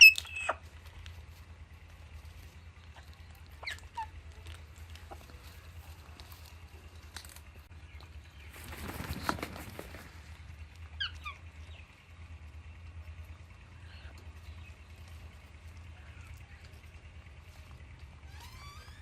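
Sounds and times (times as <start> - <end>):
parrots rustling palm fronds: 0.0 - 7.7, 8.4 - 10.8.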